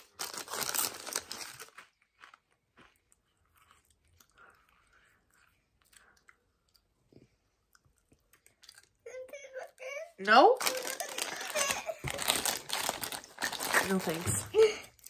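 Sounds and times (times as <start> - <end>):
potato chip crunching: 0.0 - 3.2, 10.6 - 14.2.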